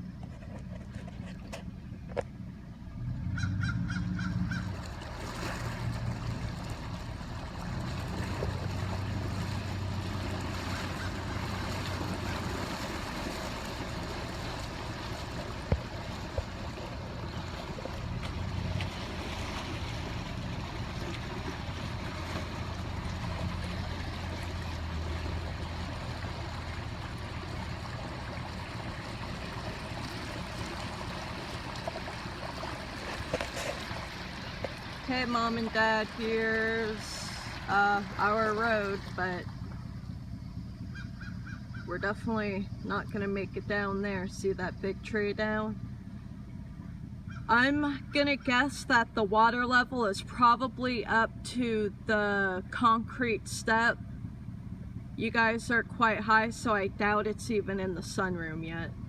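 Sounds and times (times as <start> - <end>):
car engine running: 0.0 - 59.0
water hissing on road: 5.0 - 39.7.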